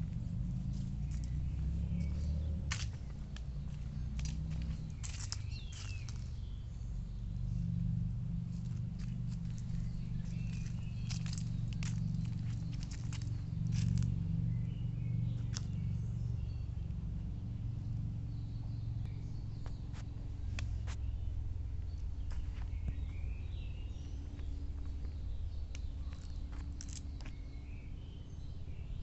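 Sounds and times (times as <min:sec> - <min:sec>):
wind rumble on microphone: 0:00.0 - 0:29.0
sharp clicks and crunches: 0:02.7 - 0:06.4, 0:08.7 - 0:14.2, 0:15.4 - 0:15.8, 0:25.7 - 0:27.5.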